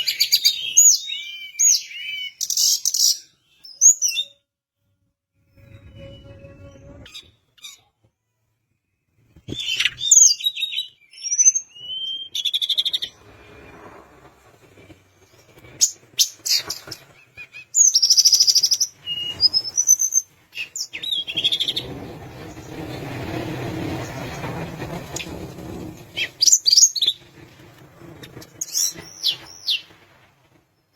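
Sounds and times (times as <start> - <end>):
songbird singing: 0.0 - 4.4, 16.2 - 22.0, 28.3 - 29.9
low rushing noise: 13.1 - 16.1.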